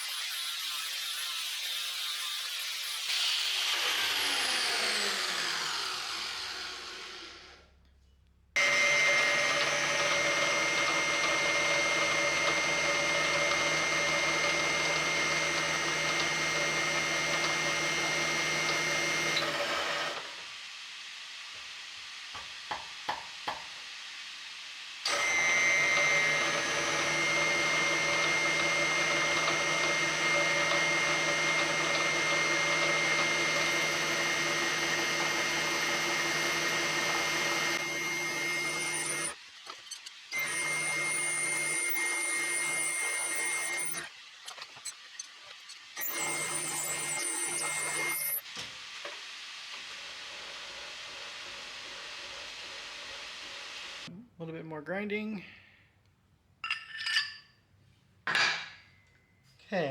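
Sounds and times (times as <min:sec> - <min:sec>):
power tool motor running: 0:00.2 - 0:07.7, 0:08.6 - 0:24.0, 0:24.9 - 0:54.1
motor winding down: 0:03.0 - 0:07.7, 0:08.6 - 0:20.7, 0:25.0 - 0:48.5.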